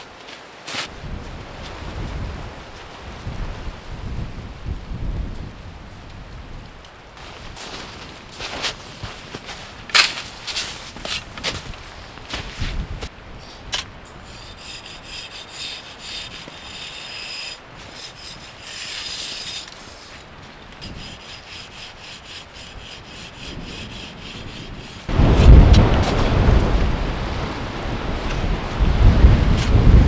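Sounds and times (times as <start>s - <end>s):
crunching and scraping in snow: 7.2s - 13.7s, 23.9s - 30.0s
loud rumbling burst: 25.1s - 30.0s.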